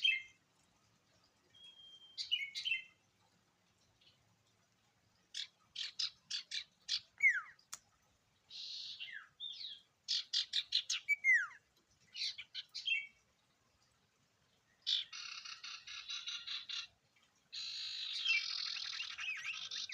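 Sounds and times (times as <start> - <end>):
songbird singing: 0.0 - 0.4, 1.5 - 3.1, 5.3 - 7.8, 8.4 - 13.2, 14.6 - 19.9.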